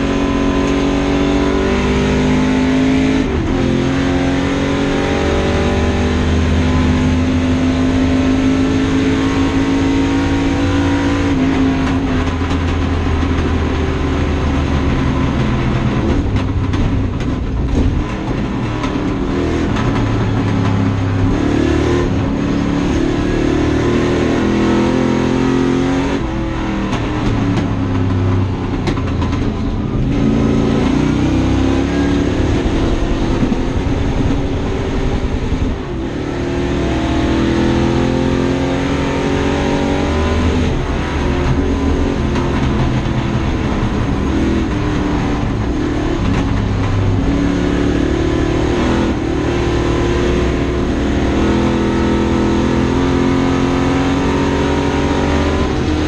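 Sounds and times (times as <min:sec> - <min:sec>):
car engine accelerating hard: 0:00.0 - 0:56.0.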